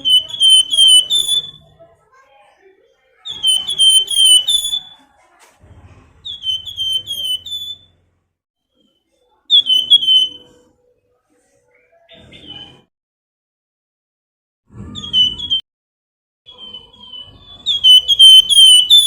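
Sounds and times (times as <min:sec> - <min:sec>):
bird whistling short high notes: 0:00.0 - 0:01.7, 0:03.3 - 0:05.0, 0:06.3 - 0:07.9, 0:09.5 - 0:10.6, 0:16.5 - 0:19.0.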